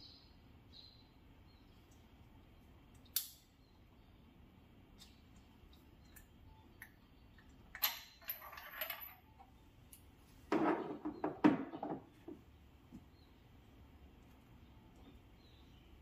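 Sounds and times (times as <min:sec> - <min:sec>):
metal tools clinking: 0:07.7 - 0:09.4
knocks and clatter: 0:10.5 - 0:12.4.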